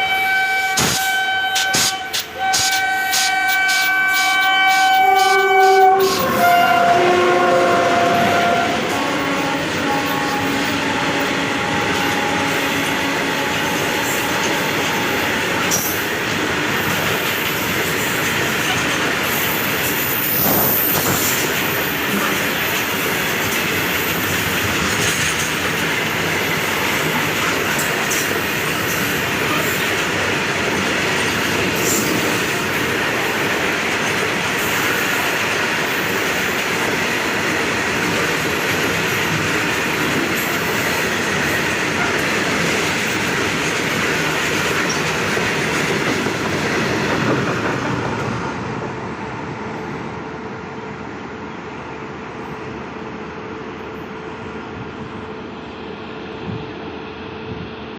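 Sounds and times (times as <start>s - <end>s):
locomotive horn: 0.0s - 15.7s
train wheels clacking on rails: 0.0s - 48.9s.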